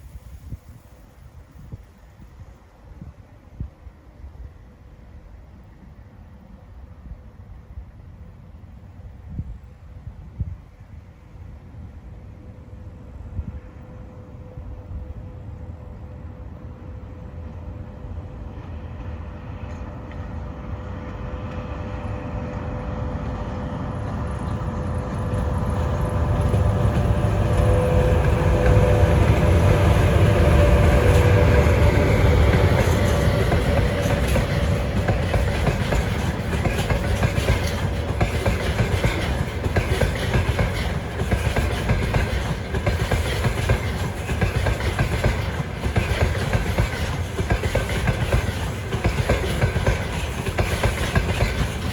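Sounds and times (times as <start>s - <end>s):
train whine: 0.0s - 51.9s
train wheels clattering over rail joints: 25.3s - 51.9s.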